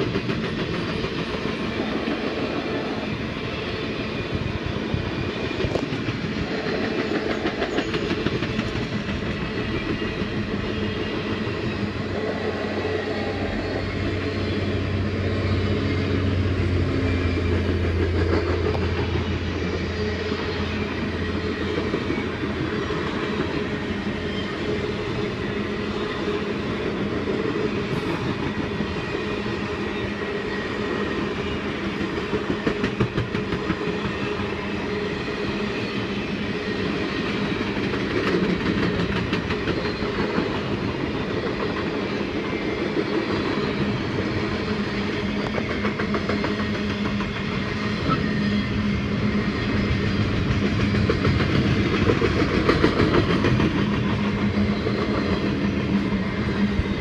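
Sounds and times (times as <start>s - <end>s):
train wheels rumbling on rails: 0.0s - 57.0s
wheels clacking over rail joints: 5.5s - 11.6s, 37.2s - 48.2s, 50.2s - 56.0s.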